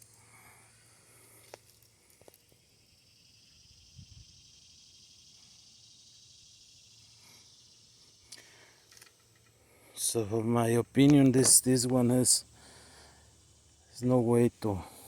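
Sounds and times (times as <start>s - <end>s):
faint high hiss: 0.0s - 15.0s
small clicks: 8.3s - 9.5s.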